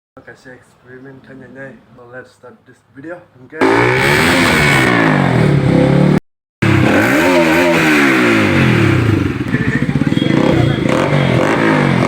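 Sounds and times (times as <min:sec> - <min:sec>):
motorcycle engine revving loudly: 0:03.6 - 0:12.0.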